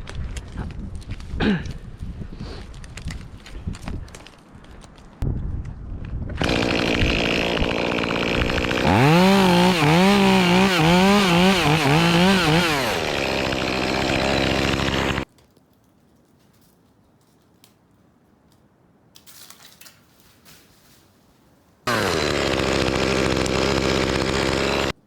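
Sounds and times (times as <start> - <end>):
chainsaw running: 6.4 - 15.3, 21.9 - 25.0.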